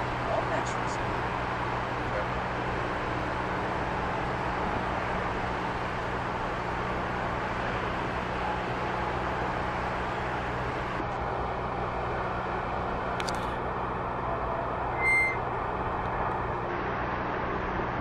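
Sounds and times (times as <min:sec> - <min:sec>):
vehicle engine humming: 0:00.0 - 0:18.0
short electronic beep: 0:15.0 - 0:15.4.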